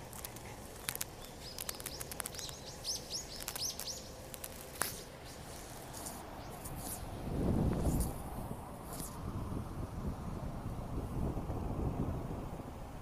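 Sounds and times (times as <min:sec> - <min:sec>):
faint clicks: 0:00.0 - 0:05.4
low outdoor hum: 0:00.0 - 0:13.0
small bird chirping: 0:00.2 - 0:07.2.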